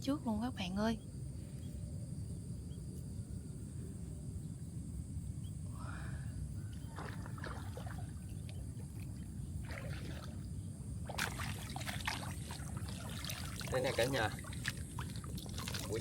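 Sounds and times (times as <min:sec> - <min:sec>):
steady low rumble: 0:00.0 - 0:07.4, 0:08.0 - 0:16.0
water splashing and sloshing: 0:06.7 - 0:16.0.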